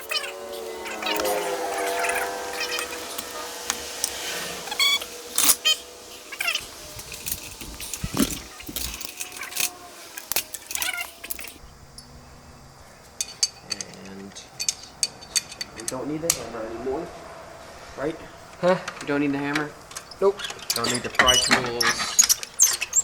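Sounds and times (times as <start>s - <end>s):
high-pitched squeaks: 0.0s - 11.6s, 20.0s - 23.0s
metal tools clinking: 0.0s - 12.1s, 13.2s - 16.1s, 19.9s - 23.0s.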